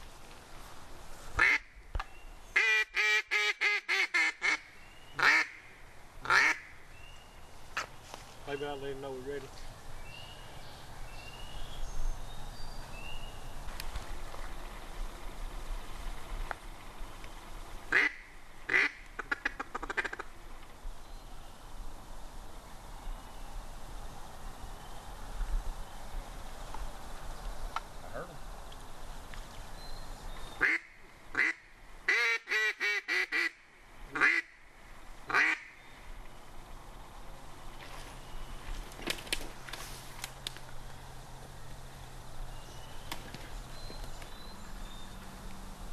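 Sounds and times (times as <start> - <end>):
duck quacking: 5.2 - 5.6, 6.2 - 6.7, 30.6 - 33.6.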